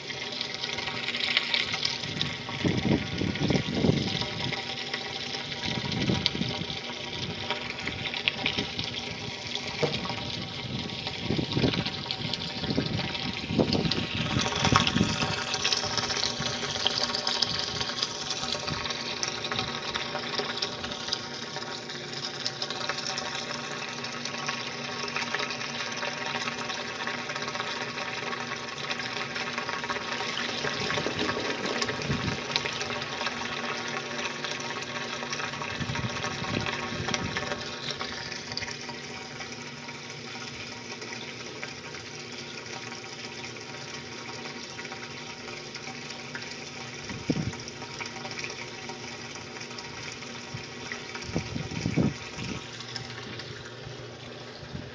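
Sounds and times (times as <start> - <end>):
washing machine motor hum: 0.0 - 54.9
water churning in washing machine: 0.0 - 54.9.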